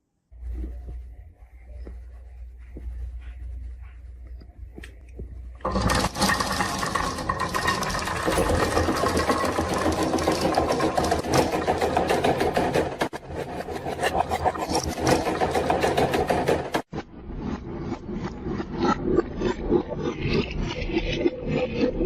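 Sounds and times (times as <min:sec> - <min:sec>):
steady mechanical whir: 0:05.1 - 0:22.0
marbles clattering down wooden run: 0:05.6 - 0:13.0.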